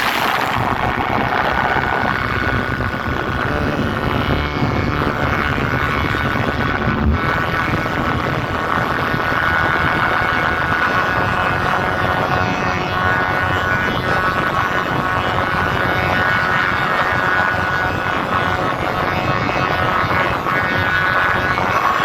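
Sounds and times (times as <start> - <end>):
distorted roar from speakers: 0.0 - 22.0.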